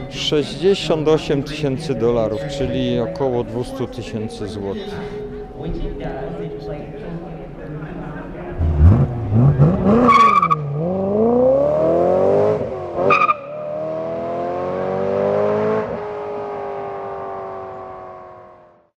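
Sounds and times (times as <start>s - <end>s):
car engine accelerating: 8.4s - 18.8s.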